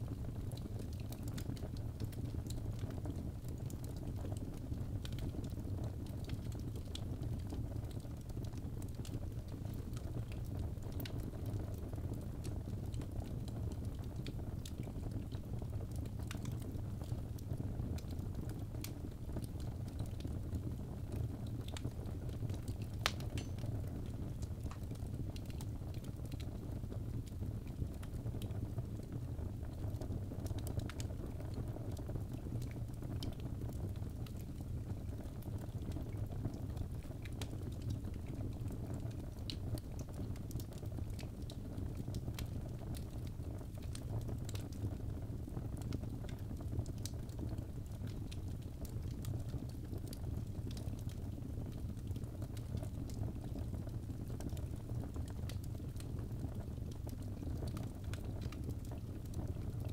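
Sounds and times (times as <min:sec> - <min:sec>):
fire crackles and pops: 0:00.0 - 0:59.9
flames rushing in fireplace: 0:09.9 - 0:28.8.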